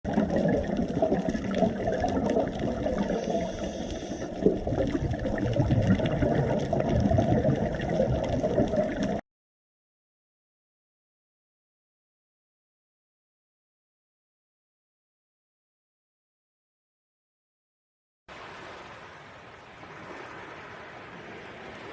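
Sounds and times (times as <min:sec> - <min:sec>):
water rushing: 0:00.1 - 0:09.2, 0:18.3 - 0:21.9.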